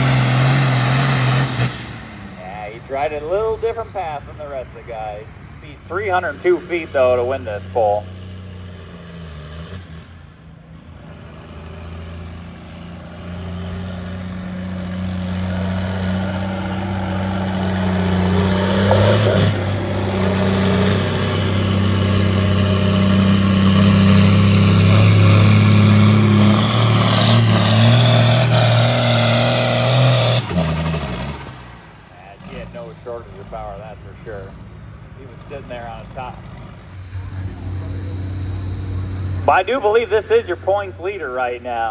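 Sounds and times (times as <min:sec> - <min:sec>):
engine at full throttle: 0:00.0 - 0:41.9
announcer speaking: 0:02.3 - 0:08.1, 0:17.6 - 0:21.1, 0:32.1 - 0:36.6, 0:39.4 - 0:41.9.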